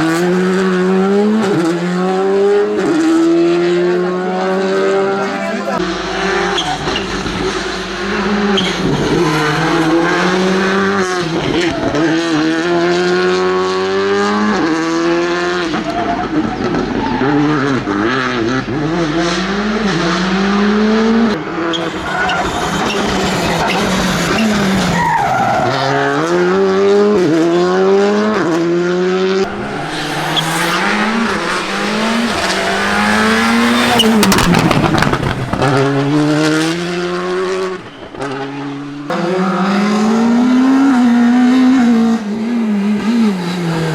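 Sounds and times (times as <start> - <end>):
rally car engines revving: 0.0 - 43.9
tyres sliding: 29.4 - 37.4.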